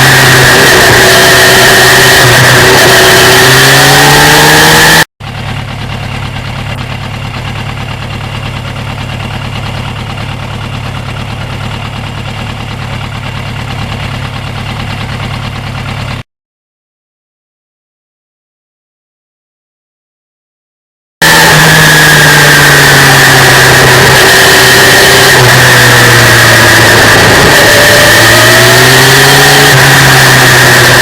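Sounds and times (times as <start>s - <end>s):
motorcycle engine revving: 0.0s - 16.2s, 21.2s - 31.0s
motorcycle engine idling: 5.2s - 16.2s.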